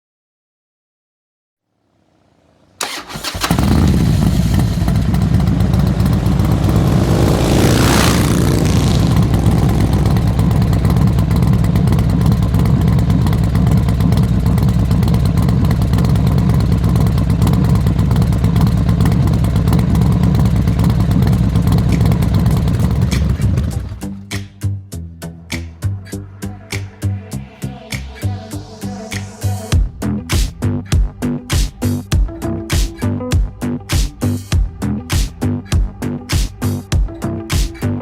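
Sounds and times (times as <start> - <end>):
motorcycle engine running: 2.4 - 24.2
whooshing sweep: 4.5 - 11.4, 25.8 - 29.8.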